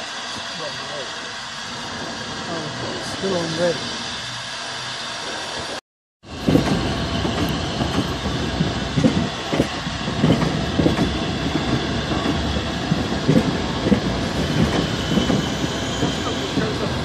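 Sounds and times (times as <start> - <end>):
train wheels knocking over rail joints: 6.3 - 17.0.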